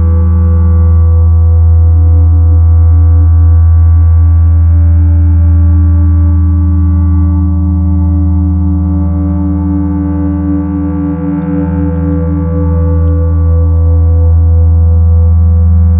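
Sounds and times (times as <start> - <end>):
ambient electronic synth drone: 0.0 - 15.9.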